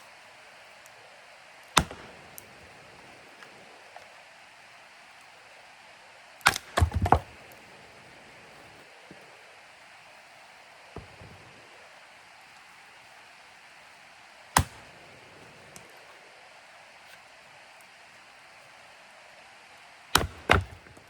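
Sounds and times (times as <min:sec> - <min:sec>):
axe chopping blows: 0:01.7 - 0:02.6, 0:06.4 - 0:07.6, 0:11.0 - 0:11.6, 0:14.6 - 0:15.0, 0:20.2 - 0:21.0
wood cracking: 0:01.8 - 0:02.5, 0:06.4 - 0:07.6, 0:20.2 - 0:21.0.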